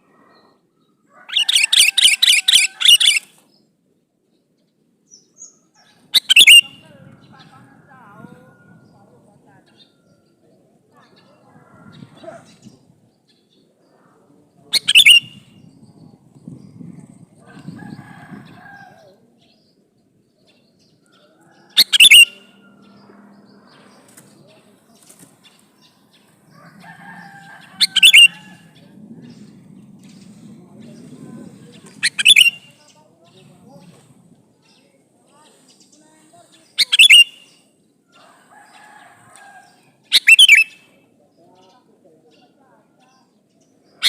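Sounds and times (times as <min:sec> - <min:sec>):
bulbul calling: 0:01.3 - 0:03.3, 0:05.2 - 0:07.5, 0:14.7 - 0:15.7, 0:21.1 - 0:24.6, 0:25.4 - 0:30.4, 0:31.7 - 0:33.9, 0:36.6 - 0:37.7, 0:39.6 - 0:41.0
bird chirping call notes: 0:06.2 - 0:06.8, 0:14.8 - 0:15.5, 0:21.8 - 0:24.1, 0:27.8 - 0:28.6, 0:32.0 - 0:32.9, 0:36.6 - 0:37.7, 0:40.0 - 0:40.9.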